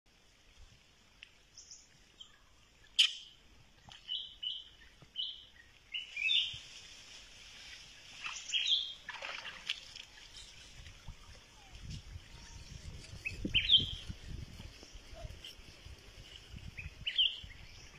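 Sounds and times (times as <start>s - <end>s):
birds chirping: 1.6s - 7.0s, 8.1s - 15.6s.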